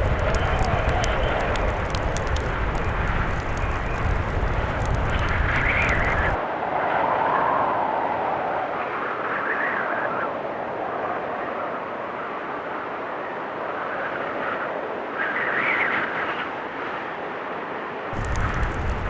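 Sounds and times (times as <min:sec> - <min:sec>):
low rumble: 0:00.0 - 0:06.4, 0:18.2 - 0:19.0
wood fire crackling: 0:00.0 - 0:06.4, 0:18.2 - 0:19.0
blizzard wind gusting: 0:00.0 - 0:08.8, 0:18.2 - 0:19.0.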